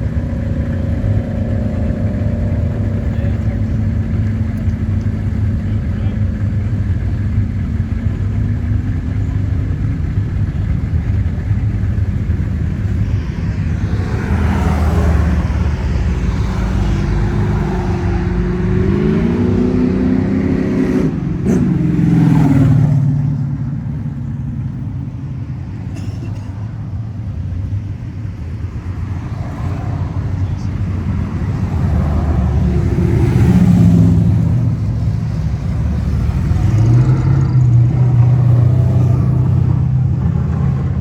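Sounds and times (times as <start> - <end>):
car engines rumbling: 0.0 - 41.0
engine revving up: 12.4 - 23.3, 29.2 - 41.0.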